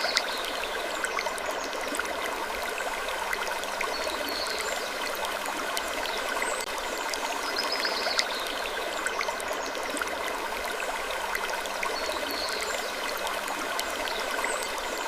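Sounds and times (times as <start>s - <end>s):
faint small clicks: 0.0s - 0.4s
rushing water-like noise: 0.0s - 15.0s.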